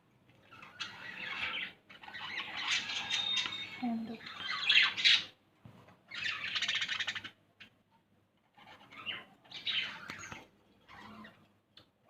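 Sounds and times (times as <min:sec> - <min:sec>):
baby lovebird chirping: 0:00.4 - 0:05.3, 0:06.1 - 0:07.7, 0:08.6 - 0:11.4.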